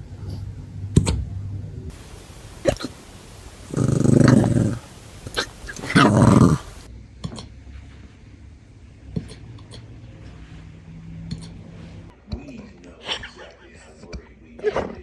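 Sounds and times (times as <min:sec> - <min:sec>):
dog hiccuping: 0:02.5 - 0:07.4
dog growly sounds: 0:03.7 - 0:07.5.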